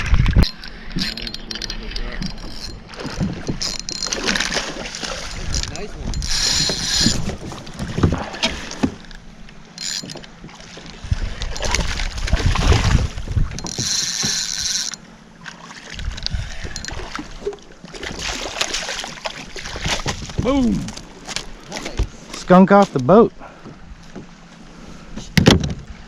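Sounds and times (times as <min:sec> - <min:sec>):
water sloshing against hull: 0:00.0 - 0:26.0
wind buffeting microphone: 0:05.2 - 0:08.3, 0:11.0 - 0:13.9, 0:19.6 - 0:21.0.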